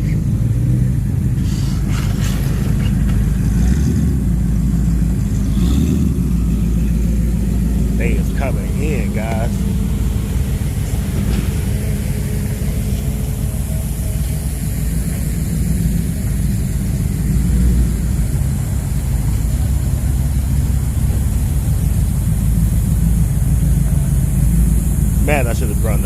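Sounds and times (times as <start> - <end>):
car engines rumbling: 0.0 - 26.0.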